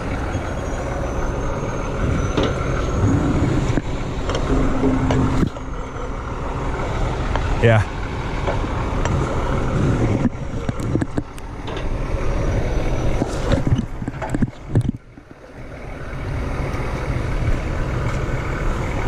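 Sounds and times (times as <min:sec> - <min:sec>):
truck diesel engine running: 0:00.0 - 0:19.0
knocks and equipment clatter: 0:02.0 - 0:06.7.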